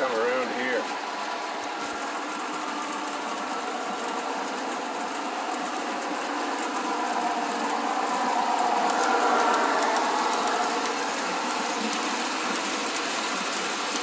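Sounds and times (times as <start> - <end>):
model trains whirring on track: 0.0 - 14.0.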